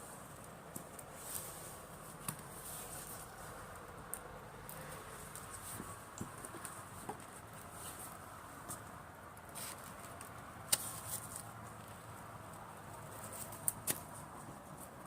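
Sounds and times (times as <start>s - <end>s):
soft steady hiss: 0.0s - 15.0s
wood fire crackling: 0.0s - 15.0s.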